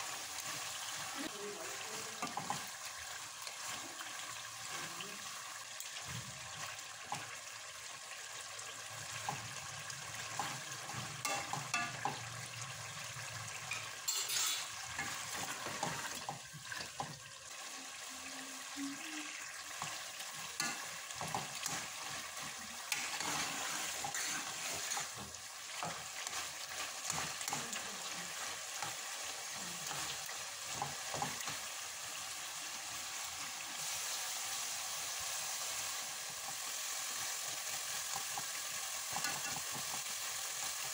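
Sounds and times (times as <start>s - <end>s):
vegetables sizzling in oil: 0.0s - 40.9s
metal spoon scraping and clinking pot: 11.2s - 12.2s, 13.7s - 15.6s, 20.6s - 20.9s, 22.9s - 25.2s.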